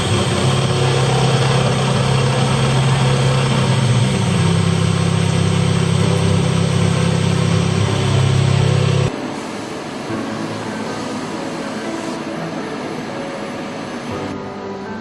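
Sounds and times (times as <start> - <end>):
heavy machinery humming: 0.0 - 14.8.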